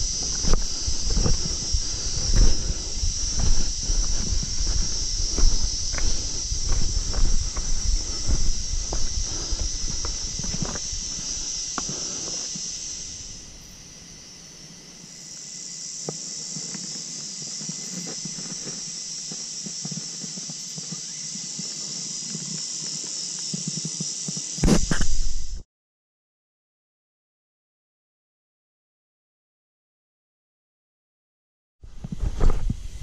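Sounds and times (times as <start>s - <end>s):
scuffs of hands and feet on rock: 0.0s - 12.9s, 16.0s - 25.4s
cicadas droning: 0.0s - 25.6s, 31.8s - 33.0s.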